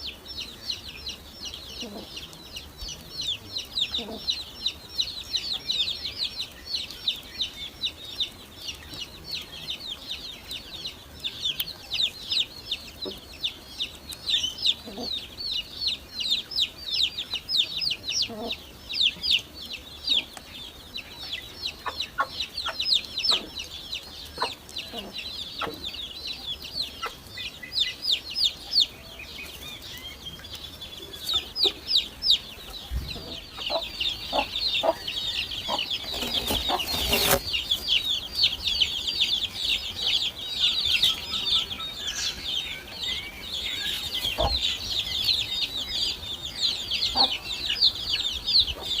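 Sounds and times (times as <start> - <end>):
nestling birds cheeping: 0.0 - 49.0
loud rustle: 36.1 - 37.8.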